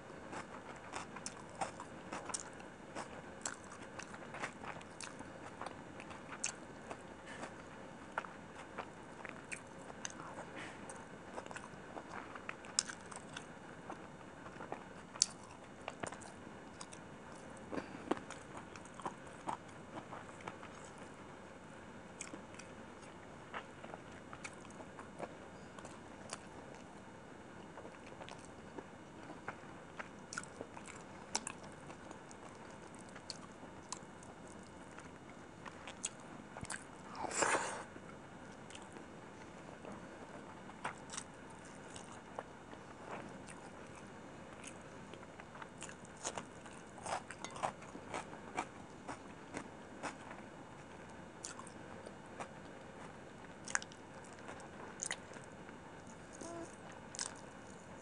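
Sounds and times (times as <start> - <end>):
chewing and lip smacking: 0.3 - 21.1, 29.4 - 37.0, 40.7 - 42.5, 43.1 - 52.8, 53.6 - 57.9.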